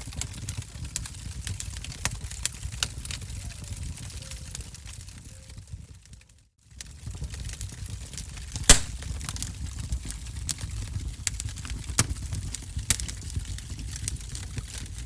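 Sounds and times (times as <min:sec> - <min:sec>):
wood fire crackling: 0:06.3 - 0:15.0.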